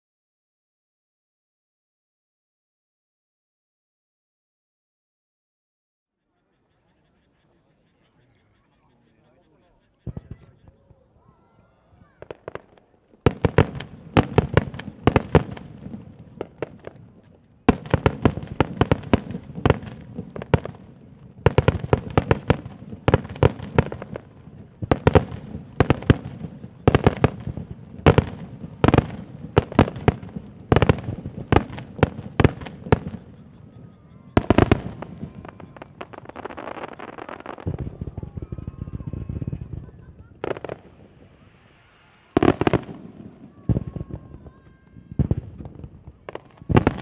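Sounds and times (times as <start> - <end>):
fireworks bursting: 9.6 - 47.0.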